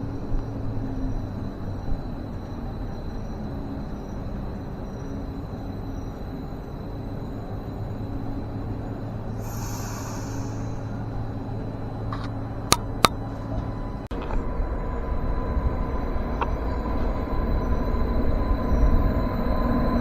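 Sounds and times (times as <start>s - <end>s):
faint whine: 0.0s - 19.8s
approaching train rumble: 7.3s - 12.6s
low hum: 8.4s - 17.1s.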